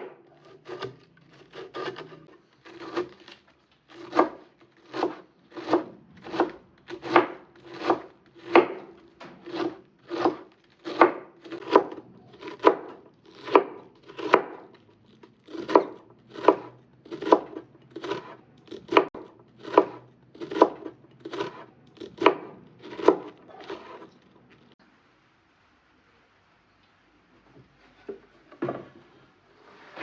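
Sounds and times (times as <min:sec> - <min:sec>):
knife chopping on wooden board: 0:00.0 - 0:14.7, 0:15.5 - 0:24.1.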